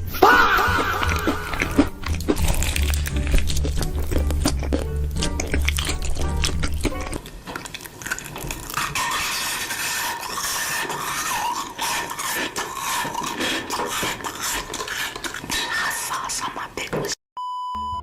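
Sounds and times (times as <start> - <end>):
eating noises: 0.0 - 16.8
cutlery scraping dishes: 8.2 - 16.1.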